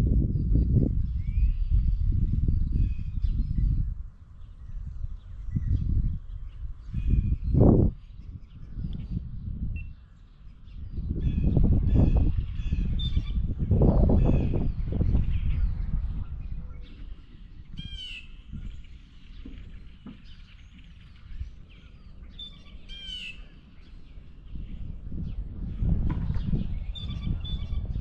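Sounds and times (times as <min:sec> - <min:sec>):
light bird chirps: 0:14.2 - 0:28.0.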